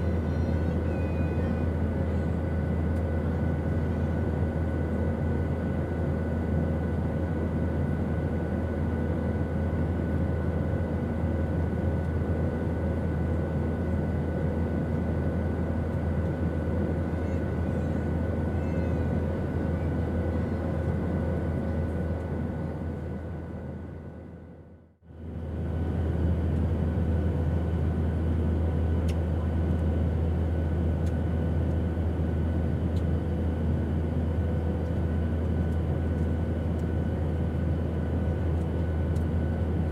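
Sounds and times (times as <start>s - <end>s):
airplane drone: 0.0s - 39.9s.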